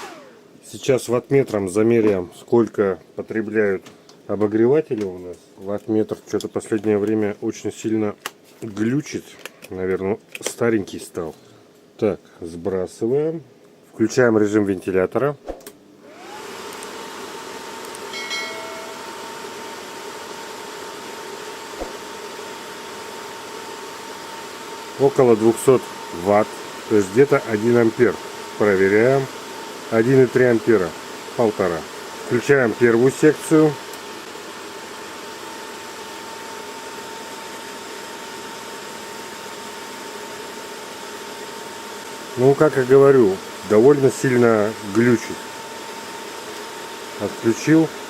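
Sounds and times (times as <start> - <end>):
fan motor whining: 0.0 - 0.4.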